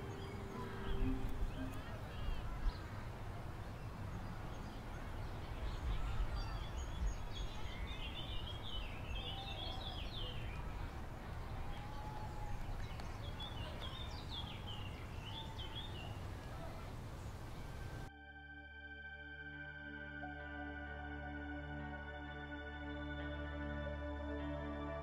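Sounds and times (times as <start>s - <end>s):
birds chirping: 0.0s - 18.1s.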